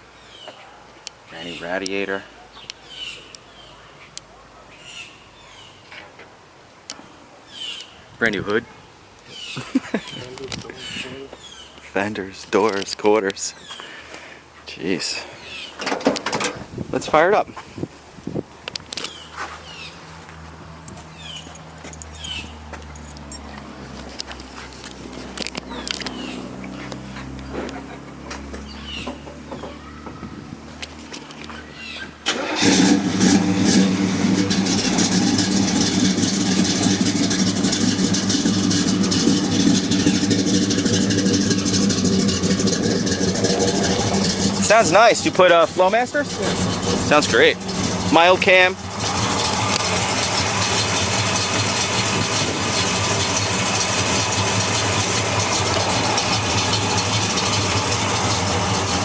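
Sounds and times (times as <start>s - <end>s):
car engine starting and running: 20.5s - 59.0s.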